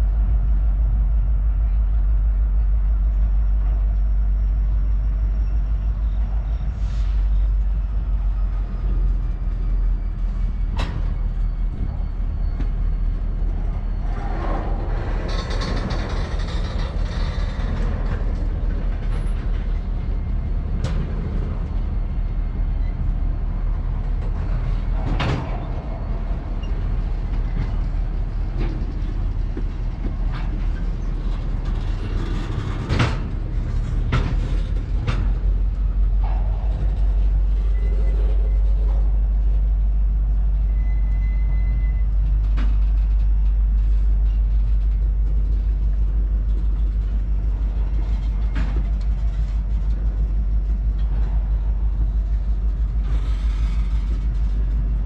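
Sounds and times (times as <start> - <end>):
freight train rumbling past: 0.0 - 41.1, 45.0 - 55.0.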